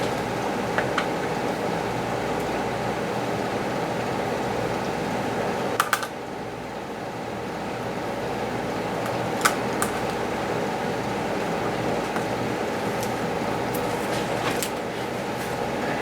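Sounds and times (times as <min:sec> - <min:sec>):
fan-like hum: 0:00.0 - 0:16.0.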